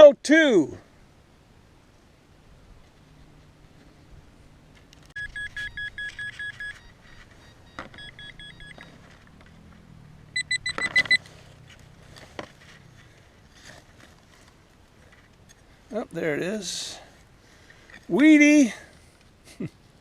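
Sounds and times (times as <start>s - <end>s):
metal detector beeps: 5.2s - 9.2s, 10.4s - 11.2s.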